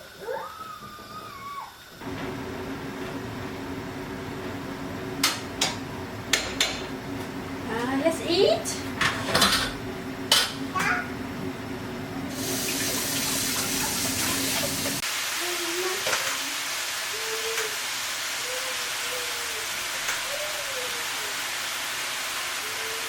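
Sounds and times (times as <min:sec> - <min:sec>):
oil sizzling as chicken fries: 0:12.2 - 0:23.0.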